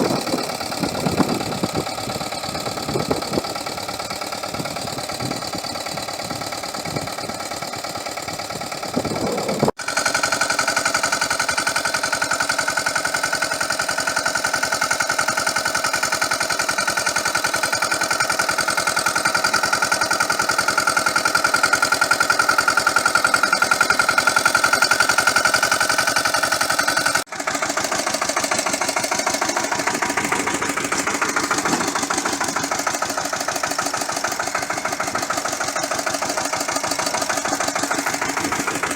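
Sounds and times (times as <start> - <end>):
high engine whine: 0.0 - 10.8, 23.0 - 38.9
diesel engine knocking: 0.0 - 38.9.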